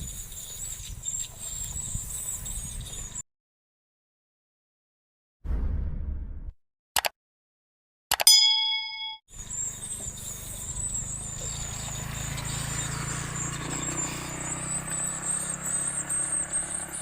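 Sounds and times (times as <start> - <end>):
low rumble: 5.5 - 6.6.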